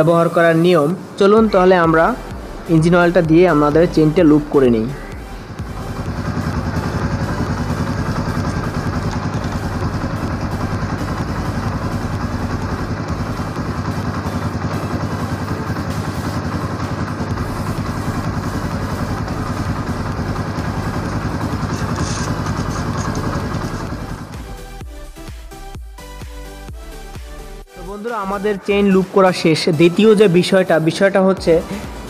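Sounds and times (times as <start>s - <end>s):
motorcycle engine idling: 1.4s - 25.3s.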